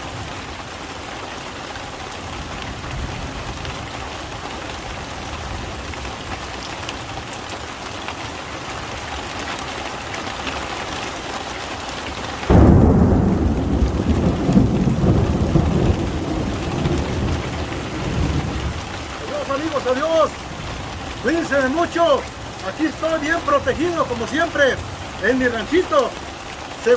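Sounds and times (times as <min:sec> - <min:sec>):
heavy rain: 0:00.0 - 0:26.9
thunder crack and rumble: 0:12.4 - 0:26.2.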